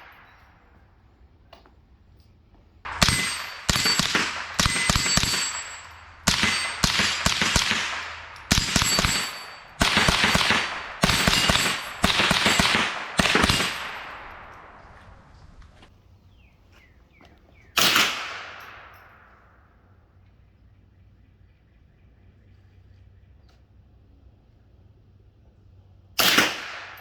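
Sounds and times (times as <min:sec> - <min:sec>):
metallic ringing: 0:02.9 - 0:10.1, 0:10.7 - 0:14.6
suppressed rifle shots: 0:02.9 - 0:15.9, 0:17.8 - 0:19.1, 0:26.2 - 0:27.0.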